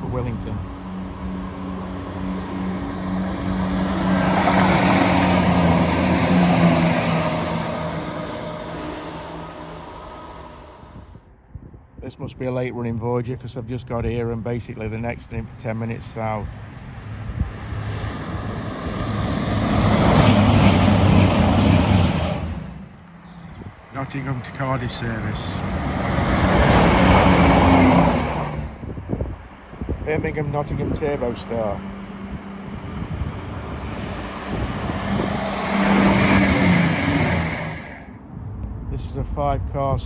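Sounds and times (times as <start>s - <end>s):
train wheel noise: 0.0s - 11.1s, 17.7s - 28.7s, 30.6s - 38.2s
diesel train engine hum: 0.0s - 11.5s, 15.9s - 38.9s.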